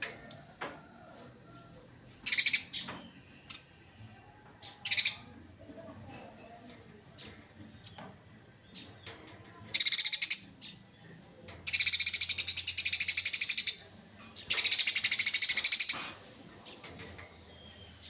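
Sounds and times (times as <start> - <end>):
sparrow harsh chattering trill: 2.2 - 2.8, 4.8 - 5.4, 9.7 - 10.8, 11.7 - 16.2.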